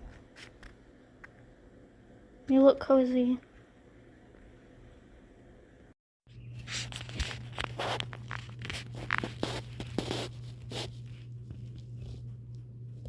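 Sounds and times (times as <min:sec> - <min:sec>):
rustling and scratching: 0:06.3 - 0:13.0.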